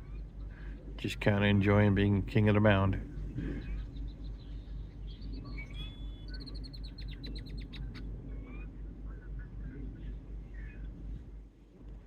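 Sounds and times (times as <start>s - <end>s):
small birds chirping: 0.0s - 11.3s
low background rumble: 0.0s - 12.0s.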